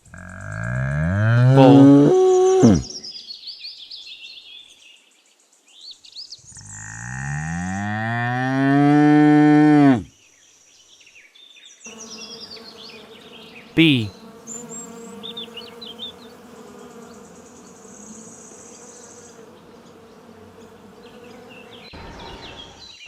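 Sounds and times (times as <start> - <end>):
bull mooing: 0.1 - 2.9, 6.7 - 10.1.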